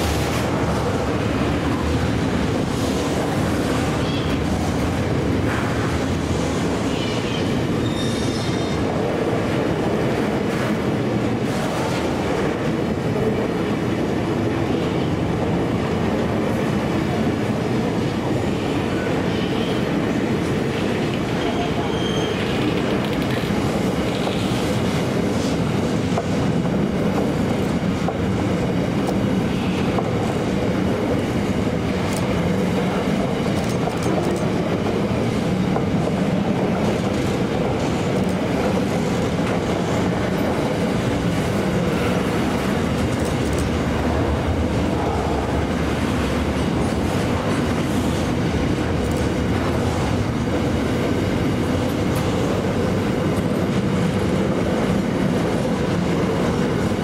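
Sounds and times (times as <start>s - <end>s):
train running on track: 0.0s - 57.0s.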